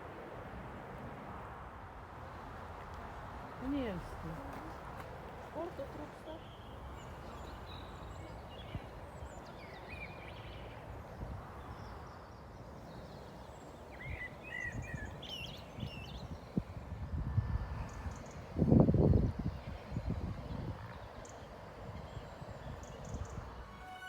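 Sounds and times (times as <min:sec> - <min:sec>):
birds chirping: 0:03.6 - 0:16.7.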